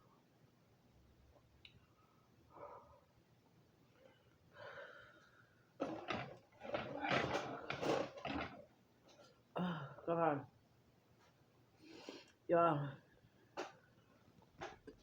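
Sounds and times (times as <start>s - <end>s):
person breathing while eating: 3.9s - 5.7s, 11.8s - 12.4s.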